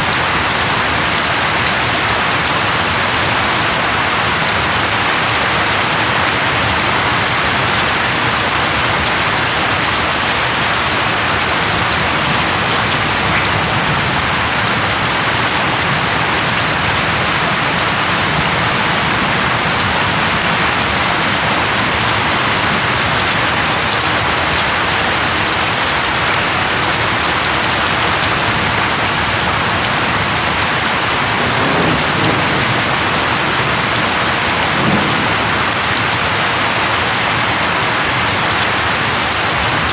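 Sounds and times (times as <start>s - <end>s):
heavy rain falling: 0.0s - 39.9s
low rumble of thunder: 11.1s - 23.7s, 28.4s - 36.8s.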